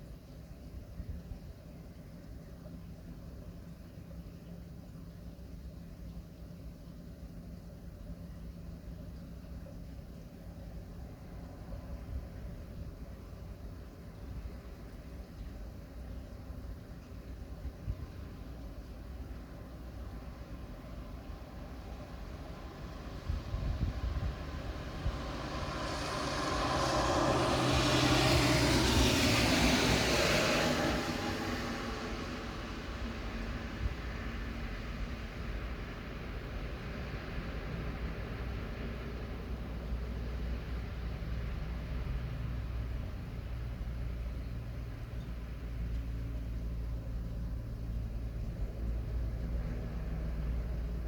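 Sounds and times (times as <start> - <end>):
low engine hum: 0.0 - 51.0
tyres hissing on wet road: 21.0 - 46.4.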